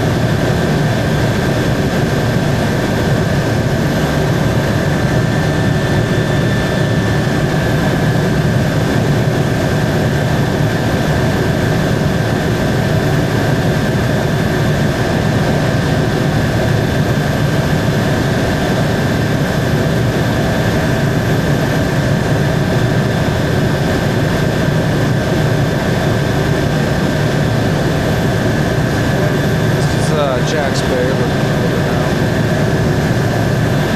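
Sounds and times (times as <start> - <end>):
helicopter engine and rotor: 0.0 - 33.9
high whine: 27.0 - 33.9.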